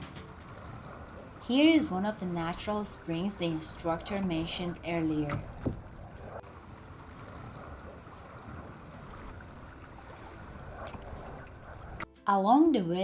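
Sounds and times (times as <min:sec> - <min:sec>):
running water rushing: 0:00.0 - 0:12.1.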